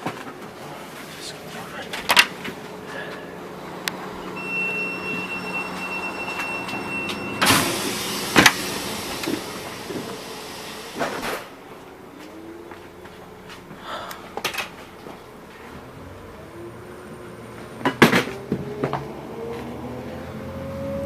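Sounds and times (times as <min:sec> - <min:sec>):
railbus humming: 0:00.0 - 0:21.0
high door beep: 0:04.2 - 0:10.1
loud air hiss: 0:05.2 - 0:11.5.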